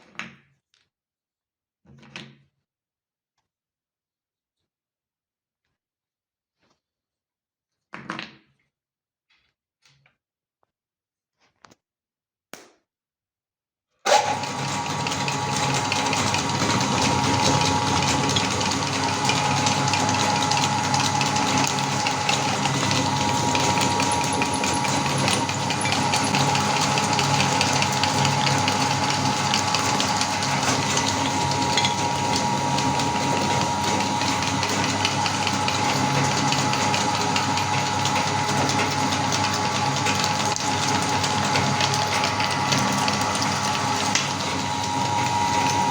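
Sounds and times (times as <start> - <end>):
cookies crunching in grinder: 6.5 - 7.0, 14.2 - 45.9
meat grinder motor whining: 14.1 - 45.9.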